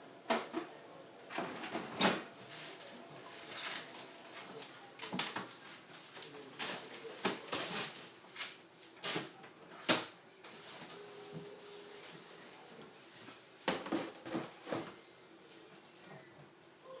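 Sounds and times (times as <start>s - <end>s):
items knocking and clicking: 13.6s - 15.0s.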